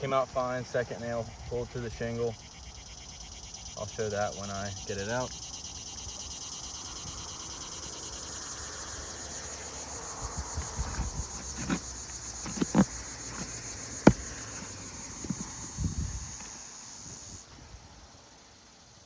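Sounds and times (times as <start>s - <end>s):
insects chirring: 0.0s - 19.0s
tool scraping and knocking: 10.6s - 11.8s, 12.4s - 15.6s.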